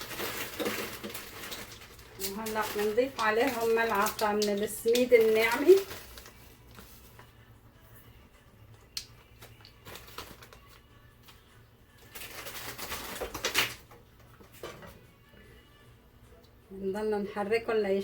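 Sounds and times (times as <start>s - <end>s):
rustling and scraping stirring: 0.0s - 7.3s.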